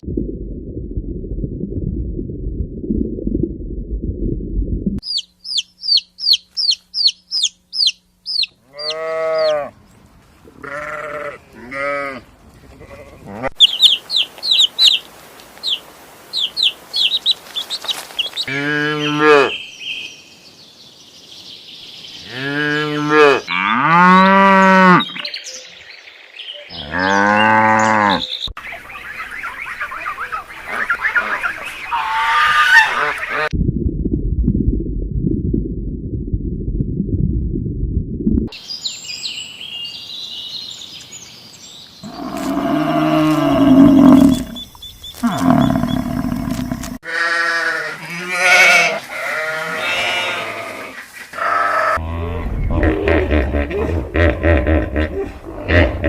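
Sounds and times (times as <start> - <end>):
high bird chirps: 5.0 - 9.6, 13.6 - 20.5, 38.6 - 46.8
long wavering animal calls: 8.6 - 9.7, 42.0 - 52.0.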